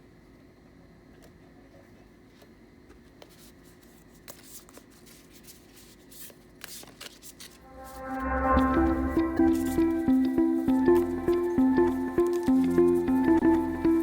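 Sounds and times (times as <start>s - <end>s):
cards being shuffled: 2.3s - 8.0s
music: 7.7s - 14.0s.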